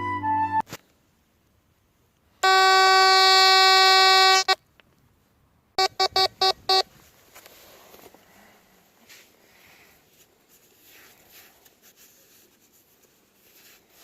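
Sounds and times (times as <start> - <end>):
metal detector buzzy tone: 2.4 - 4.6, 5.8 - 6.8
quick beeps: 5.8 - 6.8.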